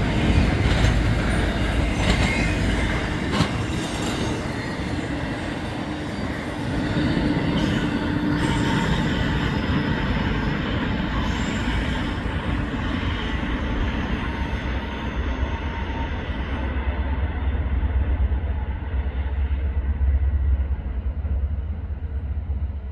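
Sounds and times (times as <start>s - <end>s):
freight train cars rolling: 0.0s - 16.8s
steel wheel squeal: 0.1s - 16.6s.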